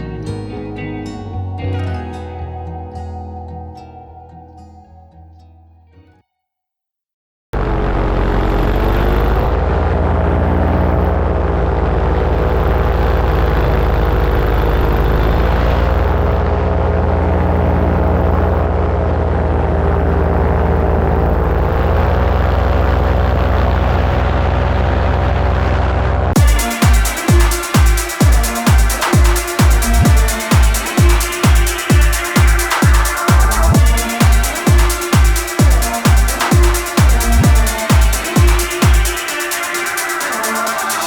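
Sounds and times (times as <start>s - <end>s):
paramotor engine and propeller: 7.6s - 26.0s
electronic music with thumping beat: 26.4s - 41.0s.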